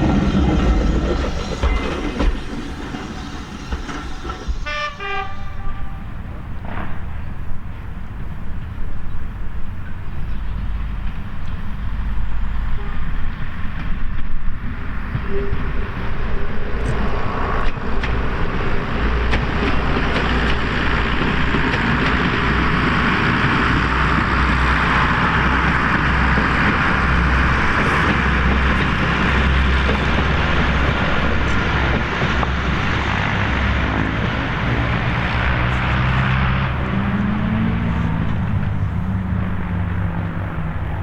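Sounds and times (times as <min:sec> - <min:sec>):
train running: 0:00.0 - 0:41.0.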